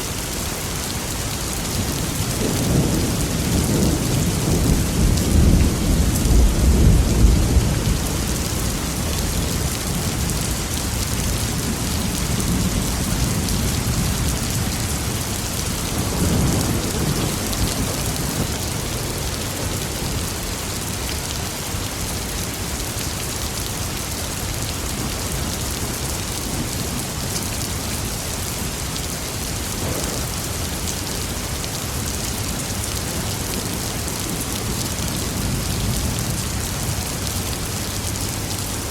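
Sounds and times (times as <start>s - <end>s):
heavy rain: 0.0s - 38.9s
rolling thunder: 1.7s - 20.2s.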